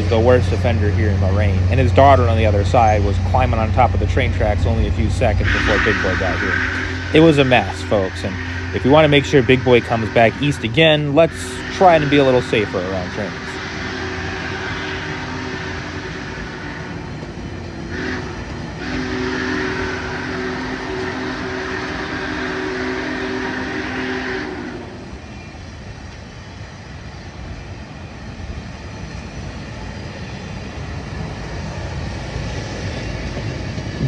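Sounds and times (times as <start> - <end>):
steam locomotive whistle chord: 0.0 - 17.0, 17.9 - 25.3
passing train rumbling: 0.0 - 34.0.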